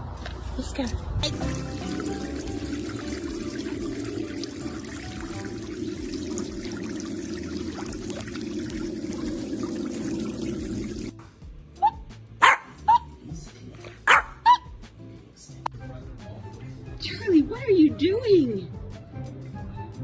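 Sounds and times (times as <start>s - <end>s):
water rushing: 1.2s - 11.2s
dog barking: 12.4s - 13.0s, 14.1s - 14.6s.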